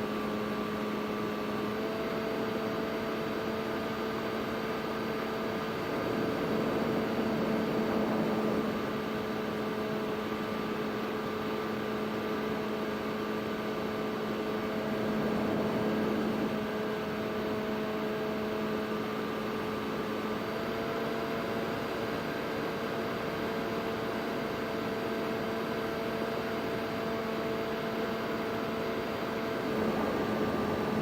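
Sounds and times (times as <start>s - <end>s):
quadcopter hum: 1.8s - 10.9s, 14.1s - 17.8s, 29.0s - 31.0s.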